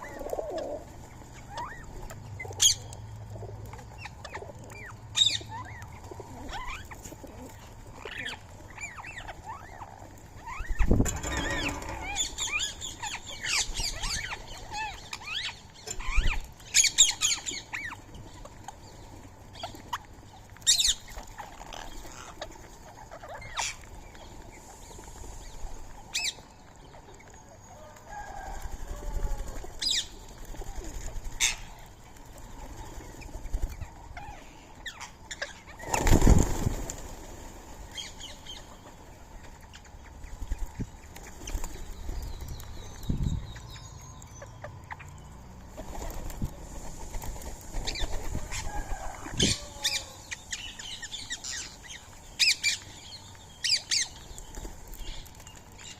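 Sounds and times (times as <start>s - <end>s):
parakeet wings flapping: 35.8s - 38.1s, 45.8s - 49.2s.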